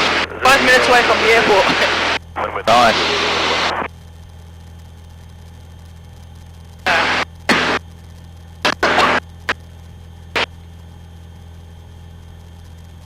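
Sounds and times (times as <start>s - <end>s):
bursts of rushing static: 0.0s - 10.8s
intercom low hum: 0.0s - 13.0s.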